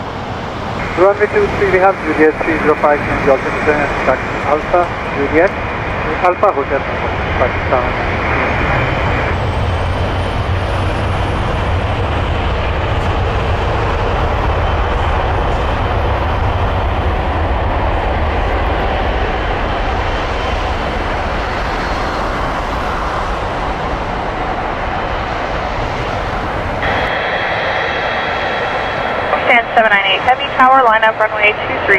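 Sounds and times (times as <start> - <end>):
jet engines rumbling: 0.0 - 31.9
faint high whine: 0.8 - 5.4, 26.8 - 31.9.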